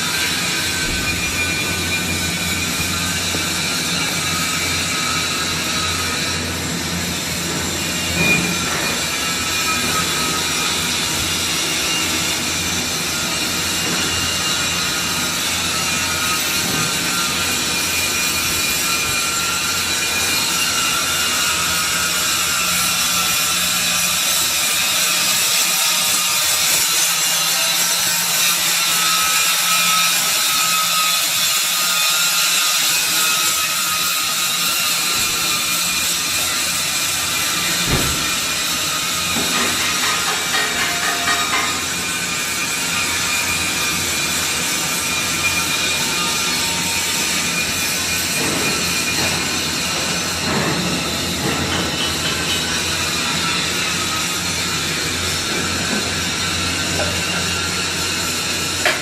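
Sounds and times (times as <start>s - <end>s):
steady hissing machine noise: 31.2s - 59.0s.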